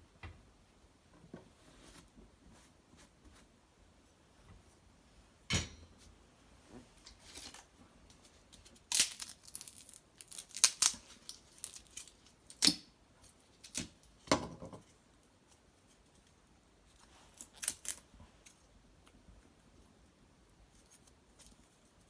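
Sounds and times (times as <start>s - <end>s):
twigs and bark snapping: 8.9s - 12.8s.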